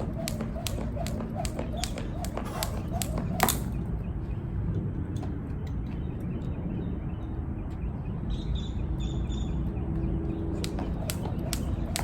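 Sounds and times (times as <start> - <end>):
jump rope slapping ground: 0.0 - 3.9, 10.4 - 12.0.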